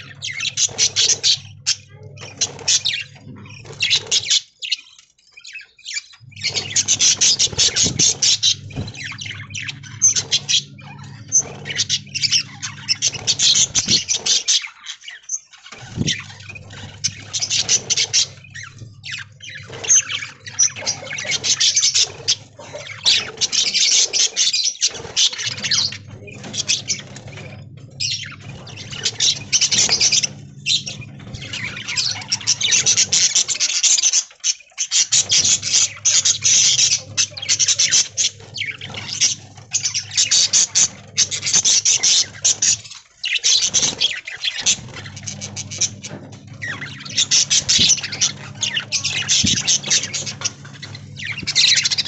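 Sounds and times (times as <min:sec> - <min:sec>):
budgerigars chattering and squawking: 0:00.0 - 0:52.0
low steady hum: 0:06.2 - 0:14.5.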